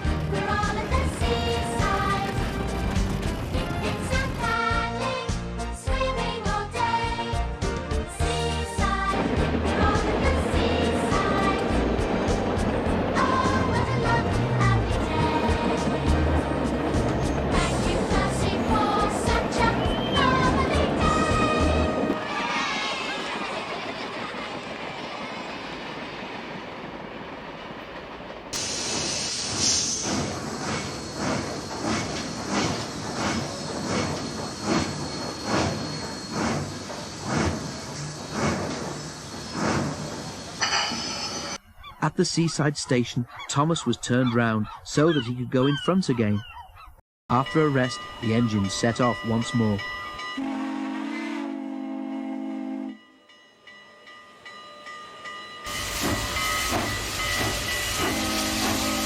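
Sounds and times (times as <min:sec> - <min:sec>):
steam locomotive chuffing: 0:00.0 - 0:07.2, 0:08.2 - 0:41.6, 0:55.2 - 0:59.0
steam hiss: 0:28.5 - 0:41.6, 0:55.7 - 0:59.0
steam locomotive whistle: 0:50.1 - 0:53.2, 0:55.7 - 0:59.0
steam engine chuffing: 0:55.7 - 0:59.0.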